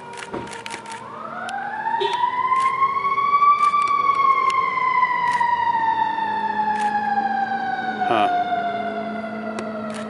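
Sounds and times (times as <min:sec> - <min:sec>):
emergency vehicle siren wailing: 0:00.0 - 0:10.0
sharp clicks: 0:00.1 - 0:02.8, 0:06.8 - 0:07.0, 0:09.6 - 0:10.0.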